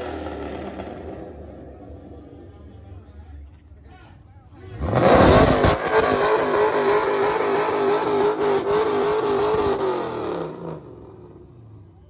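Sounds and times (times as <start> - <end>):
car engine revving hard: 4.7 - 11.4.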